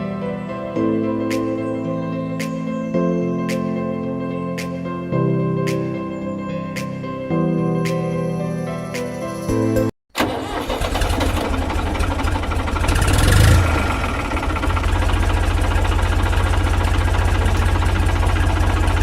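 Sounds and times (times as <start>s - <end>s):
engine starting and running: 10.1s - 19.0s.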